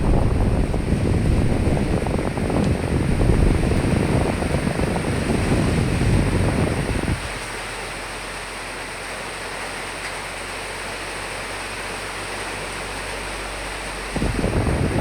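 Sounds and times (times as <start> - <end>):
wind gust rumbling: 0.0 - 7.4, 14.2 - 15.0
rain hissing: 0.0 - 15.0.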